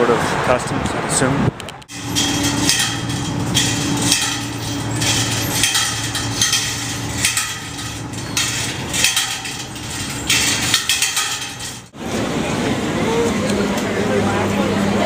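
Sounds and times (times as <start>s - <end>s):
metallic clanking and jingling: 1.9s - 12.0s
steady low hum: 1.9s - 13.0s.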